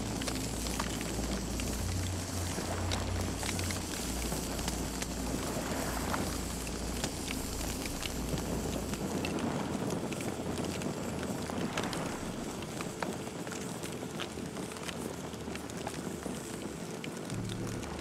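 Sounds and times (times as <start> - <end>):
low rumble: 0.0 - 13.2, 17.3 - 18.0
campfire crackling and popping: 0.0 - 18.0.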